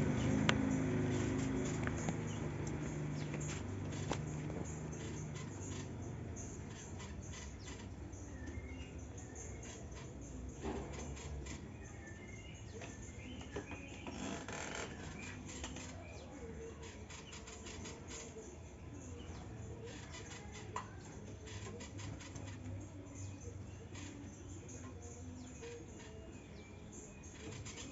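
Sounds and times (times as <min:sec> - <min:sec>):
birds rustling: 0:00.0 - 0:08.4
birds chirping and squeaking: 0:00.0 - 0:27.9.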